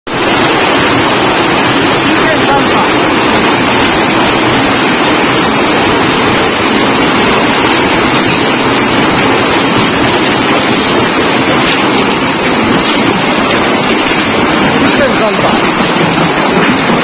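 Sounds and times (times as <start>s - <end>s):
heavy rain and wind: 0.1s - 17.0s.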